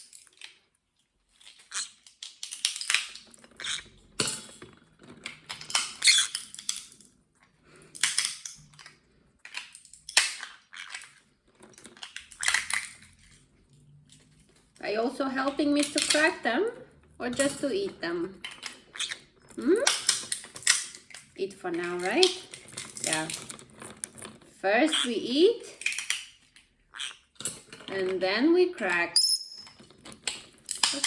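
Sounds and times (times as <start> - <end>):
nut shells cracking: 0.0 - 0.7, 1.3 - 7.2, 7.8 - 13.3, 18.4 - 21.4, 22.2 - 25.0, 25.7 - 27.9, 29.2 - 31.0.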